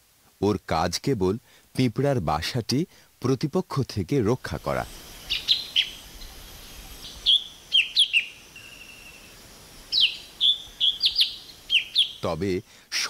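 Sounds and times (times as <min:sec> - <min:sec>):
bird calling high sliding notes: 0:04.5 - 0:12.4.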